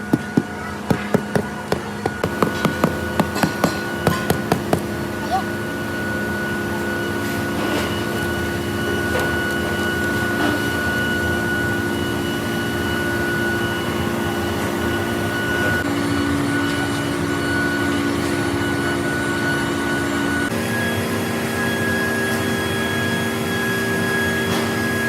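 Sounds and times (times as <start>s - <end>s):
machine tool whining: 0.0s - 25.0s.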